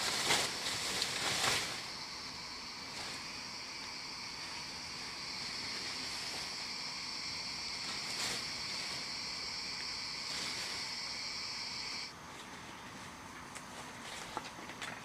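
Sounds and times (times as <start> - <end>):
high-pitched insect drone: 1.4 - 12.1.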